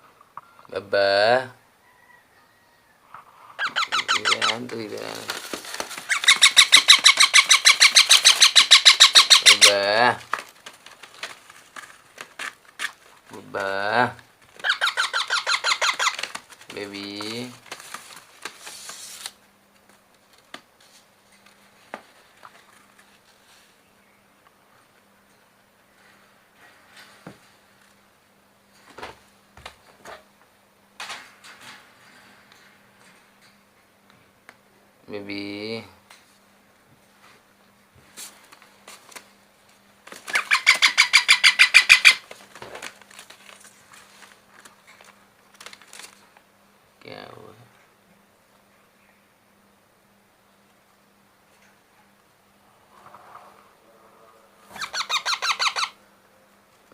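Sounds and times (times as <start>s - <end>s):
baby parrot food-begging calls: 3.6s - 4.7s, 6.1s - 10.0s, 14.6s - 16.2s, 40.3s - 42.2s, 54.7s - 56.0s
scraping and rustling of handling: 4.4s - 6.6s, 10.0s - 14.8s, 15.9s - 23.8s, 42.2s - 46.4s.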